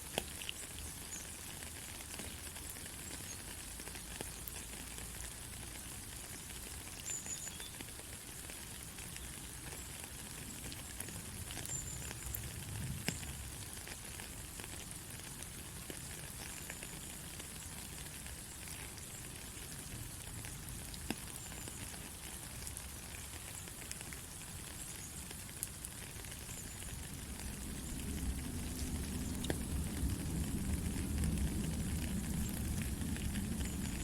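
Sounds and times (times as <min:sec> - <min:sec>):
steady rain hiss: 0:00.0 - 0:34.0
low rumble: 0:27.0 - 0:34.0.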